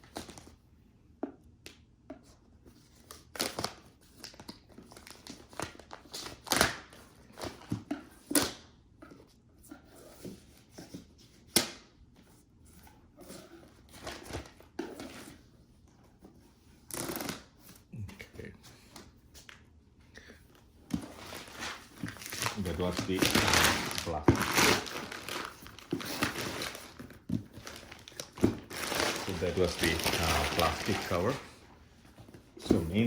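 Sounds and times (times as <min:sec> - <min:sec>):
plastic packaging crinkling and tearing: 0:21.1 - 0:31.6.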